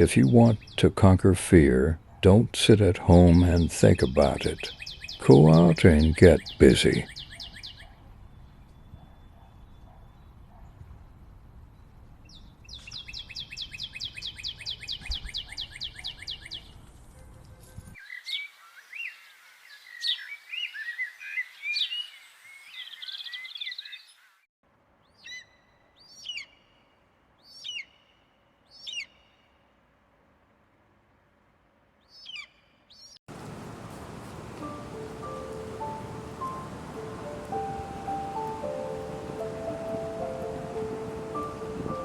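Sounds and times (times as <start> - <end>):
bird trilling: 33.4 - 42.0.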